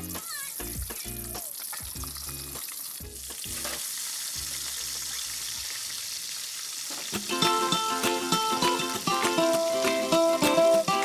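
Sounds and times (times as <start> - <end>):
plucked-string background music: 0.0 - 4.8, 7.1 - 11.0
food sizzling in a pan: 0.0 - 11.0.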